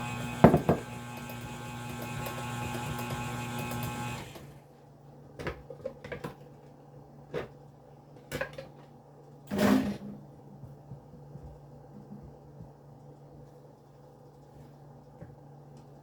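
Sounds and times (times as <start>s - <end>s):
electric mixer motor running: 0.0s - 4.6s.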